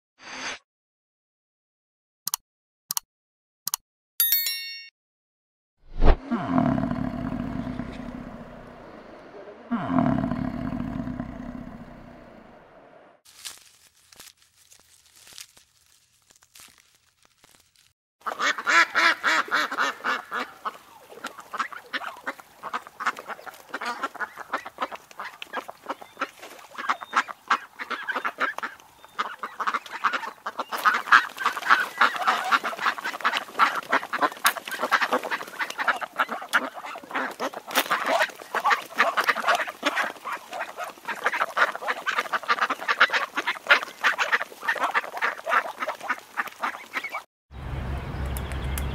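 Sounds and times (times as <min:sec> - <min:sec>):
waterfowl flock calling: 0:18.2 - 0:47.3.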